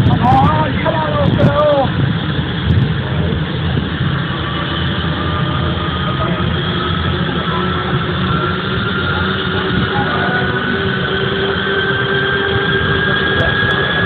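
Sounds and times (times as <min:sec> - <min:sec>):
turboprop engine starting up: 0:00.0 - 0:14.0.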